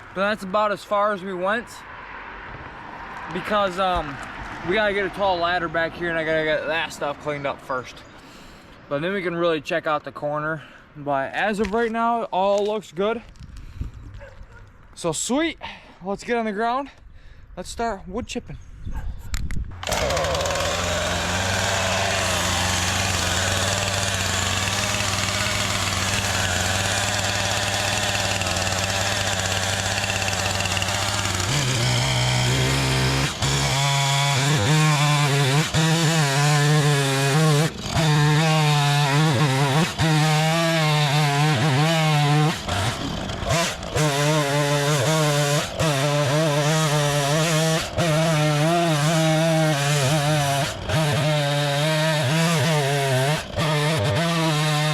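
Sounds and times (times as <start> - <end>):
wood chipper engine running: 19.8 - 54.9.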